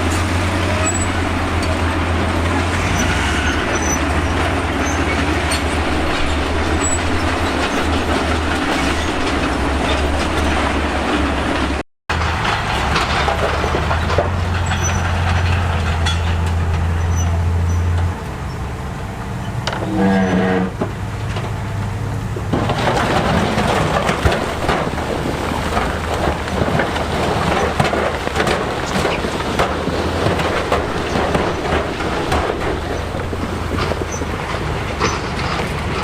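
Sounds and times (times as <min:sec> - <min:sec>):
rock scraping: 0:00.0 - 0:11.0
diesel engine droning: 0:00.0 - 0:36.0
steel tracks clattering: 0:00.0 - 0:36.0.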